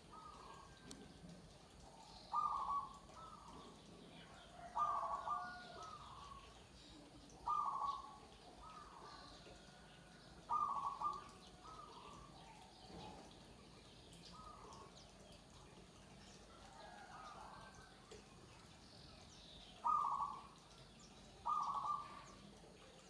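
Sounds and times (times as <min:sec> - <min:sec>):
dove cooing: 0:02.0 - 0:03.6, 0:04.4 - 0:06.4, 0:07.4 - 0:09.3, 0:10.4 - 0:12.2, 0:19.8 - 0:20.6, 0:21.4 - 0:22.3.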